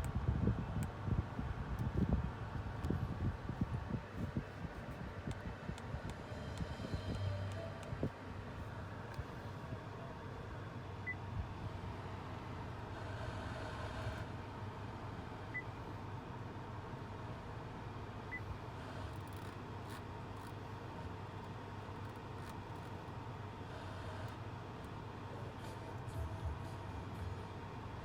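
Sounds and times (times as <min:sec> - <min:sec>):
car cabin hum: 0:00.0 - 0:12.9.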